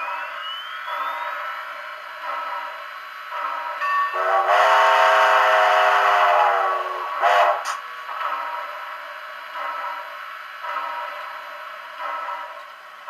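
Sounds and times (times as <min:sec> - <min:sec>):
locomotive sound effects: 0:00.0 - 0:08.7
steam whistle through small speaker: 0:04.1 - 0:07.7.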